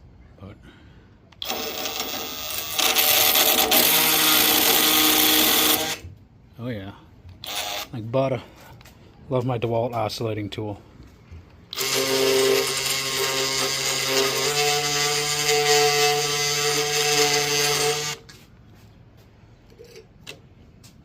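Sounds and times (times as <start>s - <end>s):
oscillating multi-tool running: 11.7s - 18.2s.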